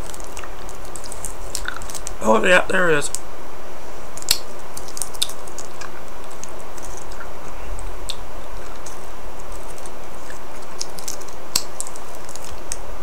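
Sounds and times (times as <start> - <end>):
person chewing hard candy: 0.0 - 2.5, 4.2 - 12.8
steady background hiss: 0.0 - 13.0
wet mouth clicks: 0.4 - 1.9.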